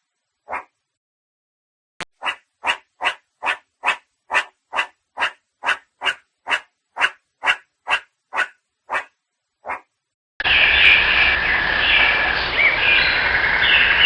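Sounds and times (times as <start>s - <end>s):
dog barking: 0.5s - 0.7s, 2.2s - 9.9s.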